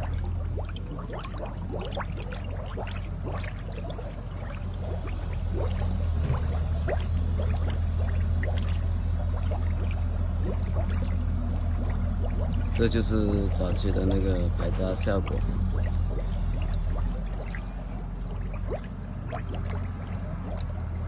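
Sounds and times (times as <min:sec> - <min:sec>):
slurry pouring and gurgling: 0:00.0 - 0:21.0
steady low hum: 0:00.0 - 0:21.0.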